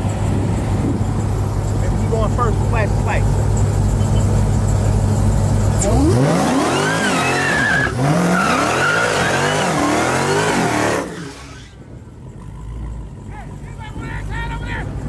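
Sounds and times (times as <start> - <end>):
car engine idling: 0.0 - 6.8, 11.6 - 15.0
car engine revving through gears: 3.6 - 11.7.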